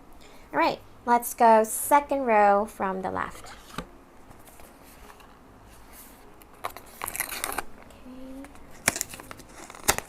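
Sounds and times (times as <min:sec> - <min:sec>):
packaging crinkling: 0:06.2 - 0:10.0
bag tearing: 0:06.6 - 0:07.7, 0:08.6 - 0:10.0.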